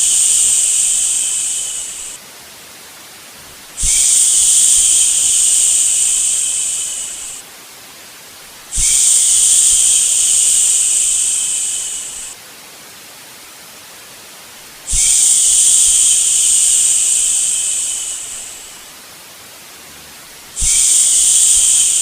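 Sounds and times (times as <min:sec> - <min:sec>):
person shushing: 0:00.0 - 0:02.2, 0:03.4 - 0:07.4
white noise hiss: 0:00.0 - 0:22.0.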